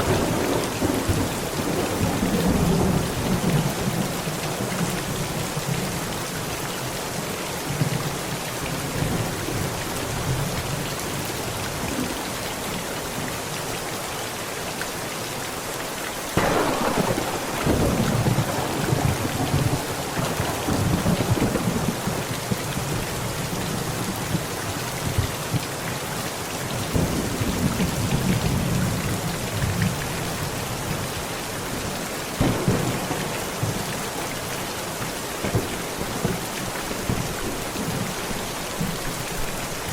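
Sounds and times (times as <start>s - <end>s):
heavy rain on a tent: 0.0s - 39.9s
thunder rumbling: 16.4s - 23.4s, 32.4s - 34.8s.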